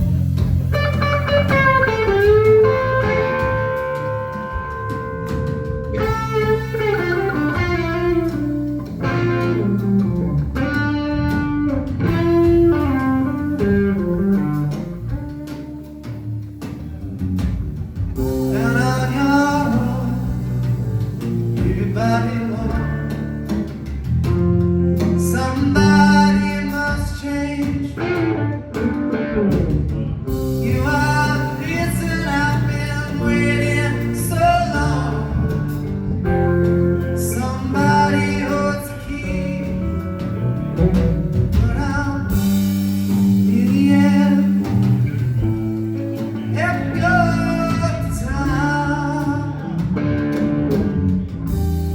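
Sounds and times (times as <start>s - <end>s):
blues-rock band playing loudly: 0.0s - 51.9s
person singing: 18.3s - 23.5s, 25.0s - 45.2s, 45.8s - 50.8s.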